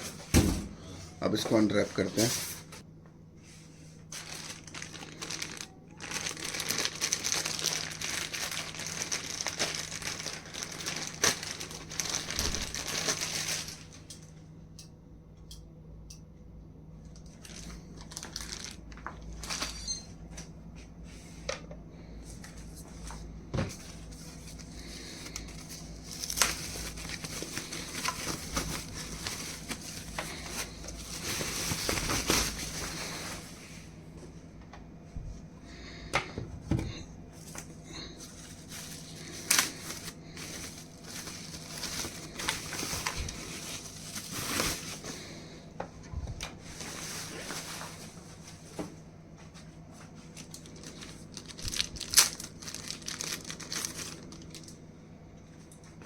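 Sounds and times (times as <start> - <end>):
wrapping crinkling: 3.9 - 14.3, 17.1 - 20.1, 22.4 - 33.9, 37.4 - 45.5, 46.6 - 48.8, 49.6 - 54.8.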